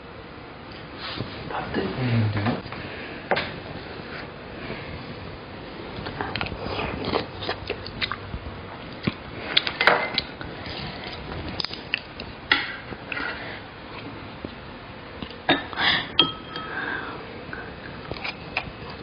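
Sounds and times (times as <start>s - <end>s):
biting and chewing: 6.0s - 12.4s, 18.0s - 19.0s.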